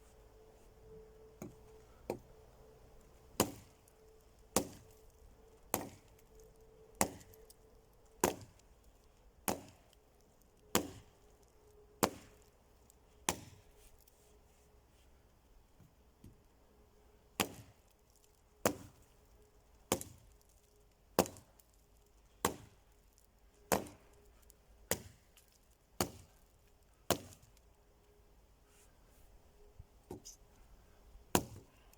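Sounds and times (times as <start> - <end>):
axe chopping wood: 3.4 - 3.7, 4.5 - 4.9, 5.7 - 6.1, 7.0 - 7.3, 8.2 - 8.5, 9.5 - 9.8, 10.7 - 11.0, 12.0 - 12.4, 13.3 - 13.6, 17.4 - 17.8, 18.6 - 19.0, 19.9 - 20.2, 21.2 - 21.5, 22.4 - 22.8, 23.7 - 24.0, 24.9 - 25.2, 26.0 - 26.3, 27.1 - 27.4, 31.3 - 31.7.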